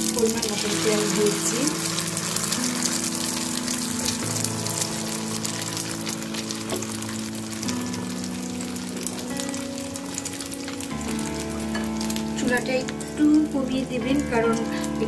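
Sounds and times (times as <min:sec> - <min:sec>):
background music with held notes: 0:00.0 - 0:15.0
egg and greens sizzling in oil: 0:00.0 - 0:15.0.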